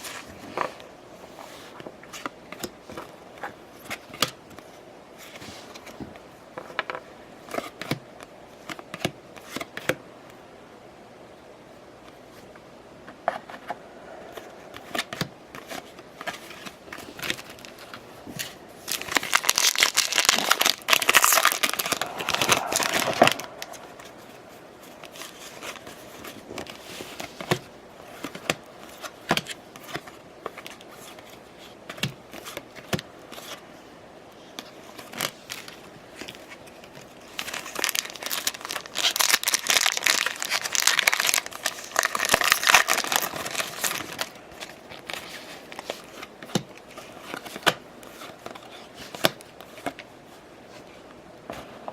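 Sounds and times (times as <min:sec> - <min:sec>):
plastic wrappers tearing and crumpling: 0:18.8 - 0:23.9, 0:36.9 - 0:46.2.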